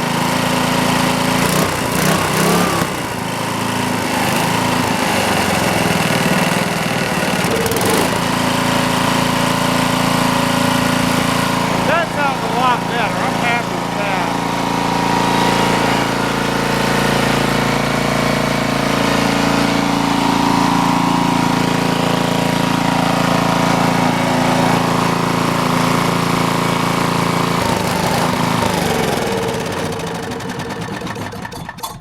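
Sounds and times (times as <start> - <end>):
generator engine running: 0.0 - 31.8.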